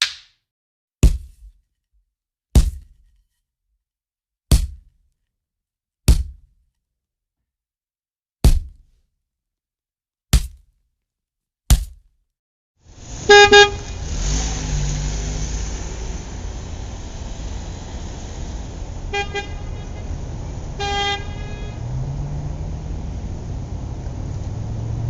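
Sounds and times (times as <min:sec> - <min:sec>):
road traffic: 0:12.8 - 0:25.0
car horn honking: 0:13.0 - 0:14.7, 0:17.2 - 0:23.2.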